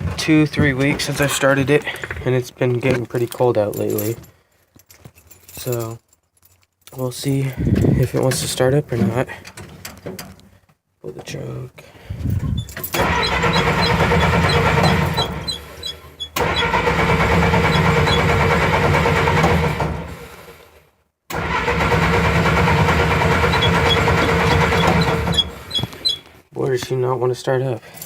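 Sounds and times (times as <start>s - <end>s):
engine starter cranking: 12.4s - 20.6s, 21.3s - 26.2s.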